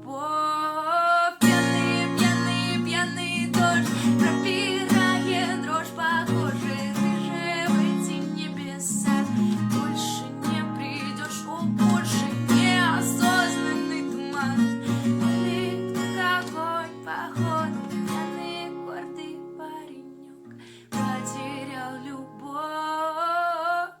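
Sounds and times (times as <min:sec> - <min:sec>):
acoustic guitar playing: 0:01.4 - 0:23.3.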